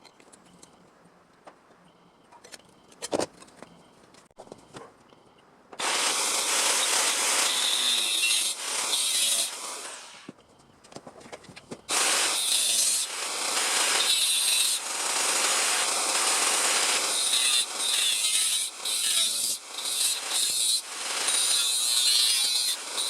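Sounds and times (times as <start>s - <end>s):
power tool cutting sheet steel: 5.8s - 10.3s, 11.9s - 23.0s.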